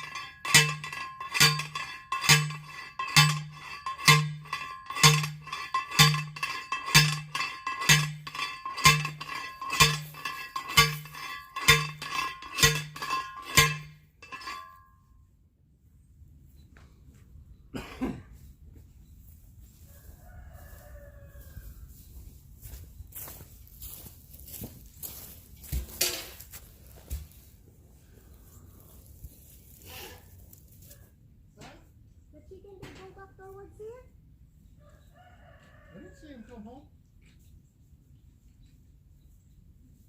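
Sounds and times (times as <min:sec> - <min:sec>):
hammering on metal: 0:00.0 - 0:14.8.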